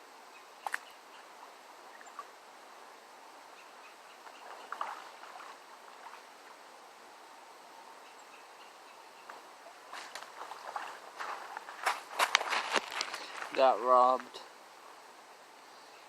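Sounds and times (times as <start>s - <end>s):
creek water flowing: 0.0s - 16.0s
sharp click: 0.6s - 0.9s
brief rustle: 9.9s - 13.6s.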